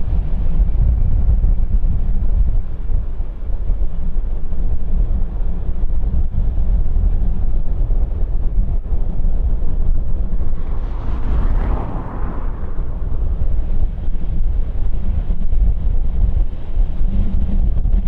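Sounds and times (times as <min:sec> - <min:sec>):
wind buffeting microphone: 0:00.0 - 0:18.0
jet engines rumbling: 0:07.8 - 0:16.2.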